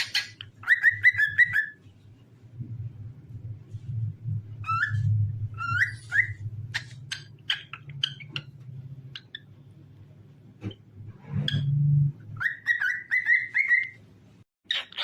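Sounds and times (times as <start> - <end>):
cockatiel whistling and chirping: 0.0 - 1.8, 4.6 - 8.5, 12.4 - 14.0, 14.7 - 15.0
low steady hum: 0.0 - 14.4.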